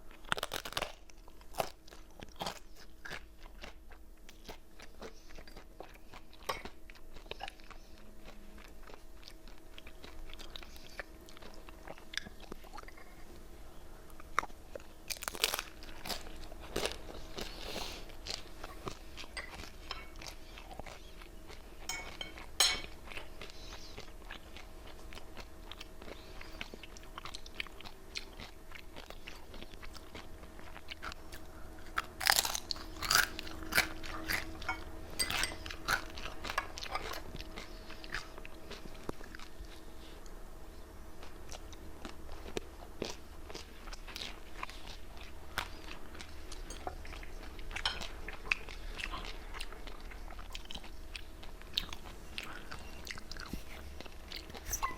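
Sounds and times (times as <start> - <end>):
faint steady hum: 0.0 - 54.9
chips crunching while chewing: 0.1 - 7.9, 14.2 - 23.2, 24.0 - 39.6.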